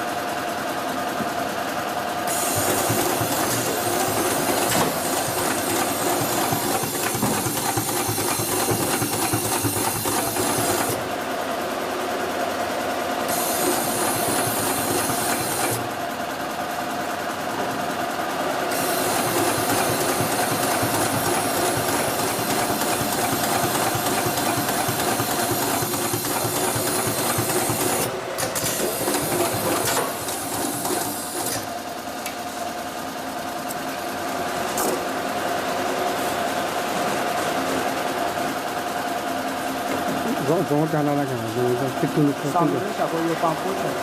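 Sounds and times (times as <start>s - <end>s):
sewing machine stitching: 2.3s - 11.0s, 18.7s - 31.8s.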